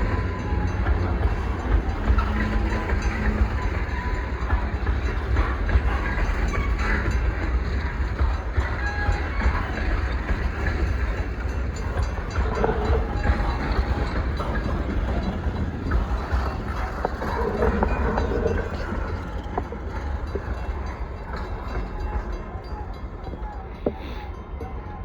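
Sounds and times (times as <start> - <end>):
train wheels rumbling on rail: 0.0 - 25.0
wheel squeals: 0.0 - 25.0.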